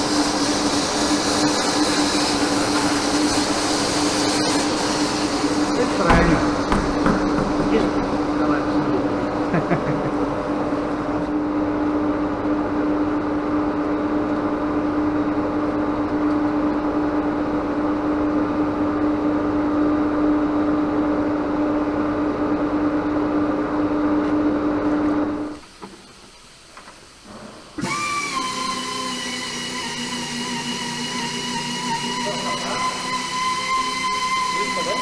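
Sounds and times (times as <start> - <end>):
tyre buffing tool whining: 0.0 - 11.3, 27.8 - 35.0.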